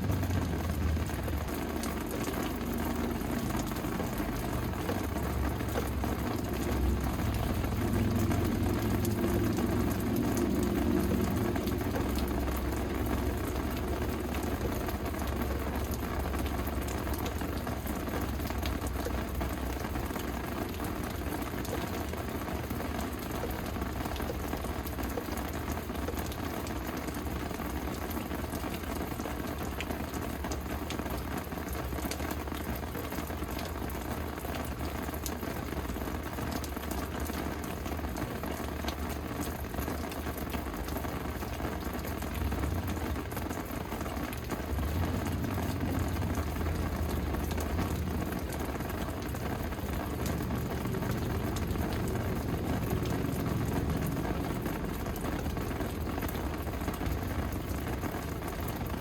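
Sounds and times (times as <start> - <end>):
steady rain falling: 0.0 - 59.0
low rumble: 6.2 - 16.0.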